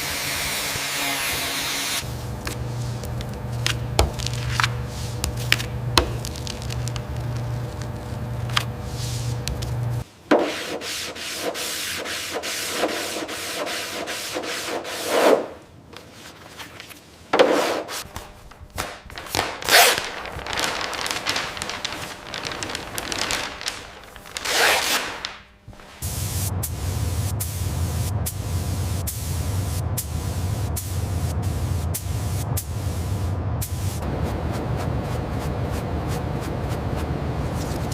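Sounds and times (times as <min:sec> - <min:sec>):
steady low hum: 0:02.0 - 0:10.2, 0:18.0 - 0:37.9
sanding strokes on a surface: 0:10.4 - 0:15.4.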